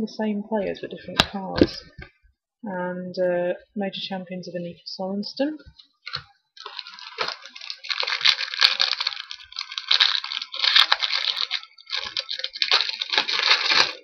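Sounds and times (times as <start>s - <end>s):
card pack wrapper tearing and crinkling: 6.1s - 14.0s.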